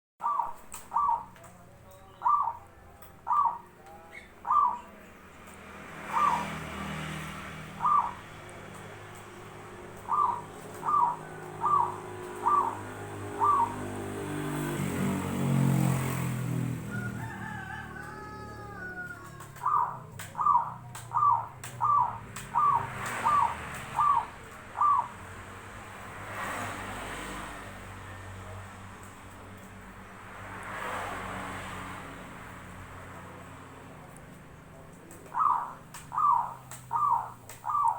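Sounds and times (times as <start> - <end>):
dove cooing: 0.2 - 5.2, 6.0 - 16.1, 16.9 - 25.9, 33.6 - 37.9
passing vehicle rumble: 0.2 - 37.9.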